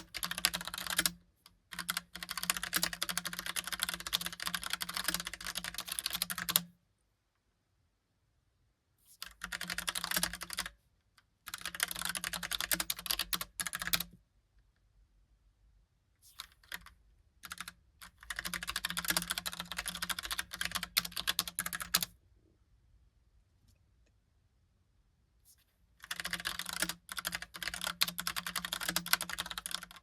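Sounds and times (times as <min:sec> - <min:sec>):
mechanical keyboard typing: 0:00.0 - 0:06.7, 0:09.2 - 0:10.8, 0:11.5 - 0:14.2, 0:16.4 - 0:22.1, 0:26.0 - 0:30.0.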